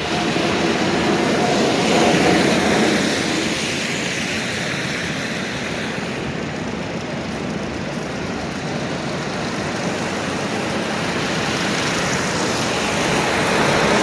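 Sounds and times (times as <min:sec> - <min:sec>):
large vehicle passing: 0:00.0 - 0:04.4
street traffic: 0:00.0 - 0:14.0.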